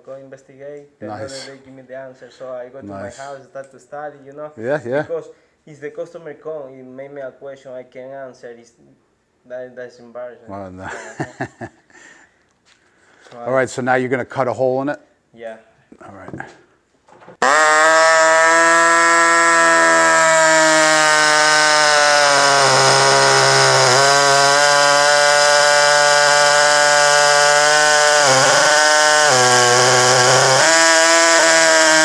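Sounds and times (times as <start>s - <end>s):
power tool cutting: 17.4s - 32.0s.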